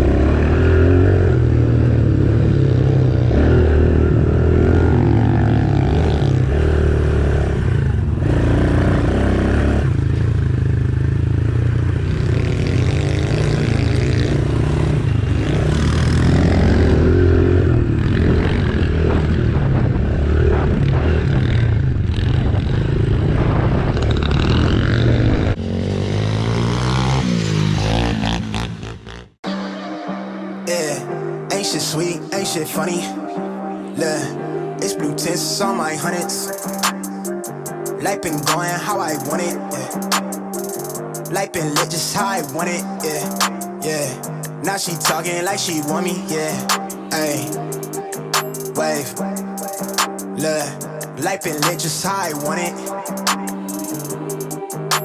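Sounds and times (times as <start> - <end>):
motorcycle engine revving: 0.0 - 29.4.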